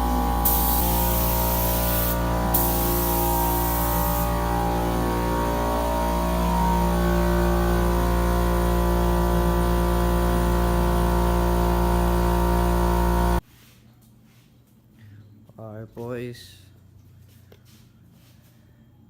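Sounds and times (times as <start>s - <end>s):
air compressor running: 0.0s - 13.4s.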